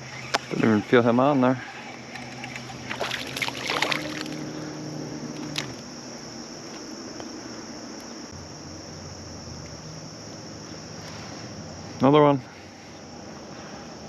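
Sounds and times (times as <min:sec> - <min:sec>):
crickets chirping: 0:00.0 - 0:14.0
handling clicks and rustles: 0:05.3 - 0:05.9.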